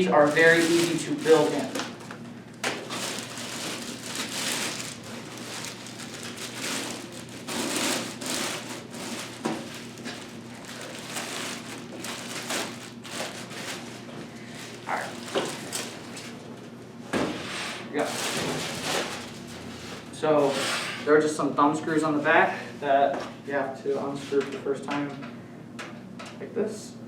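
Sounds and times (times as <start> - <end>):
rustling handling noise: 0.0 - 16.5, 17.9 - 20.6.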